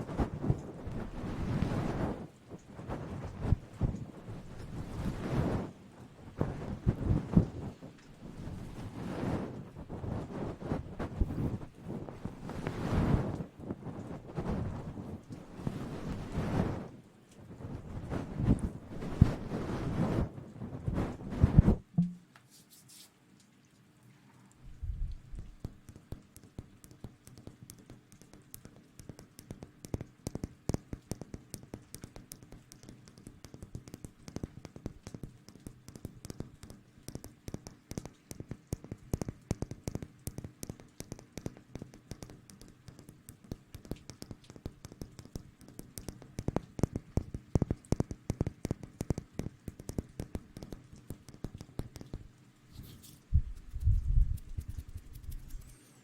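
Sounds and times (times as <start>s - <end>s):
fingers scrubbing at microphone: 0.0s - 2.2s, 2.8s - 5.7s, 6.4s - 16.9s, 17.6s - 23.1s, 43.8s - 56.0s.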